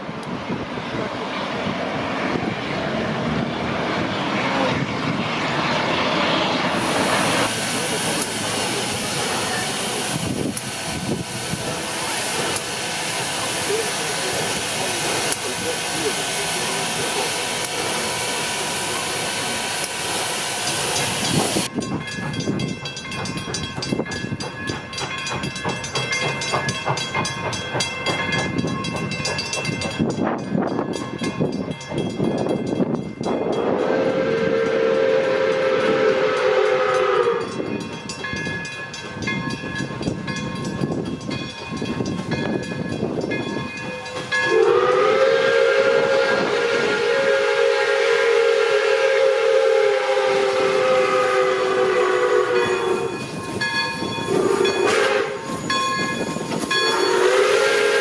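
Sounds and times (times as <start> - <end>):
steam locomotive exhaust beating: 0.0 - 58.0
steam hissing: 1.9 - 21.7, 33.3 - 38.5, 40.1 - 58.0
steam whistle blasts: 33.4 - 37.6, 44.5 - 53.3, 54.3 - 55.7, 56.7 - 58.0.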